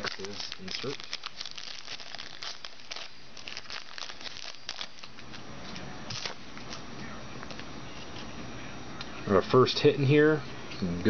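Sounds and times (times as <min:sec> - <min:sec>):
foil wrapper crinkling: 0:00.0 - 0:05.4, 0:06.1 - 0:06.8.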